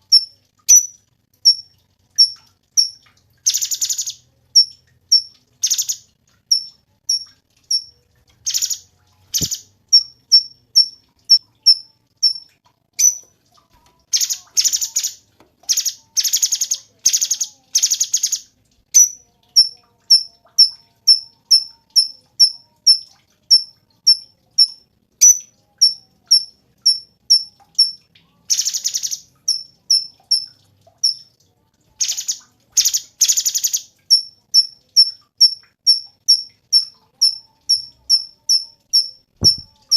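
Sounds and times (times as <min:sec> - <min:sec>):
bird chip notes: 0:00.1 - 0:07.9, 0:08.5 - 0:11.0, 0:11.6 - 0:13.2, 0:19.0 - 0:28.0, 0:34.1 - 0:39.9.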